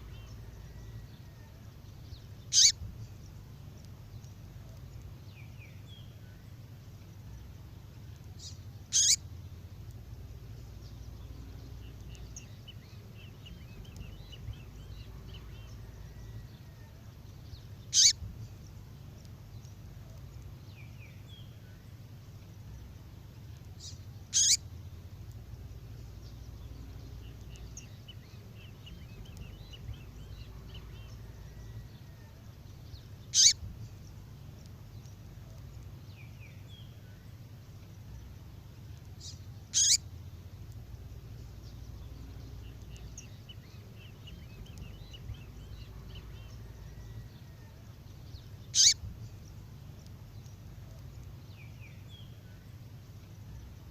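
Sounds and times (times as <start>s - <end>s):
faint high twittering: 0.0s - 6.6s, 7.2s - 22.9s, 23.8s - 40.1s, 40.7s - 53.9s
steady low hum: 0.0s - 53.9s
sharp high bird chirp: 2.5s - 2.8s, 8.9s - 9.2s, 17.9s - 18.2s, 24.3s - 24.6s, 33.3s - 33.6s, 39.7s - 40.0s, 48.7s - 49.0s.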